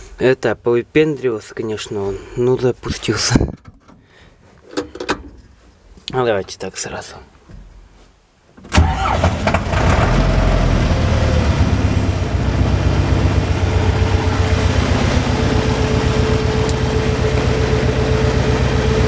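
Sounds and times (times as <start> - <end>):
diesel tractor engine idling: 8.8 - 19.0.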